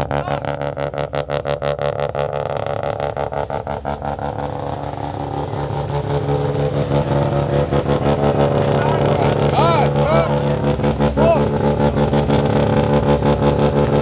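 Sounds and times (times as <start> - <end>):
car engine running: 0.0 - 14.0
regular pulsing: 3.6 - 14.0.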